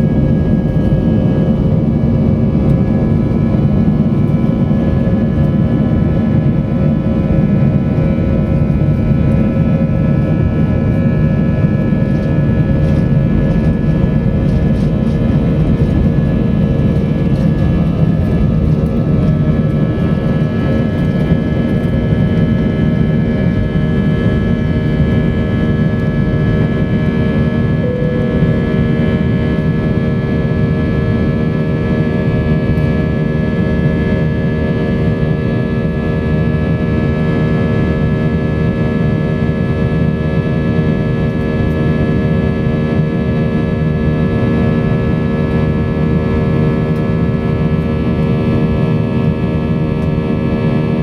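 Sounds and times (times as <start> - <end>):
whining engine tones: 0.0 - 36.8
jet engine cabin rumble: 0.0 - 51.0.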